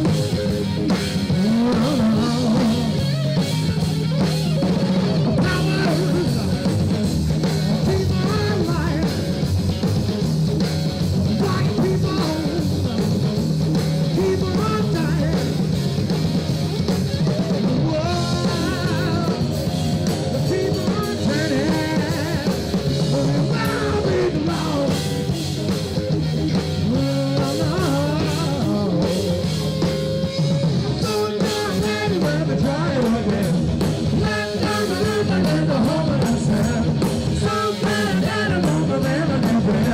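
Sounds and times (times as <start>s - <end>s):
bass guitar: 0.0s - 39.9s
drum kit: 0.0s - 39.9s
electric guitar: 0.0s - 39.9s
person singing: 1.2s - 3.2s, 5.2s - 7.0s, 7.7s - 9.4s, 11.3s - 13.1s, 14.1s - 15.7s, 17.5s - 25.5s, 26.8s - 39.9s.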